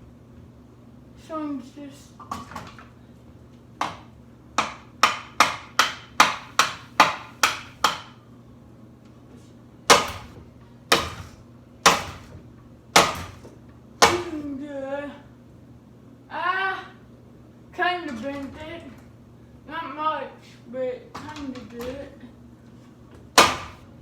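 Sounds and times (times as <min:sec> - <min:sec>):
hammer striking fan blade: 0:04.6 - 0:08.2, 0:09.9 - 0:12.3.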